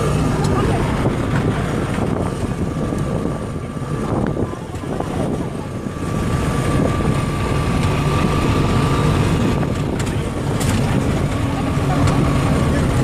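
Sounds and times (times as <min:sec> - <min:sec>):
engine running: 0:00.0 - 0:13.0
thin steady whine: 0:00.0 - 0:13.0.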